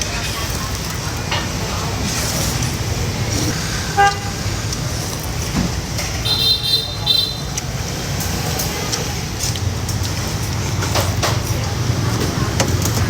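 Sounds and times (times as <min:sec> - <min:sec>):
street traffic: 0:00.0 - 0:13.0
vehicle horn toot: 0:03.9 - 0:04.4, 0:06.2 - 0:07.6.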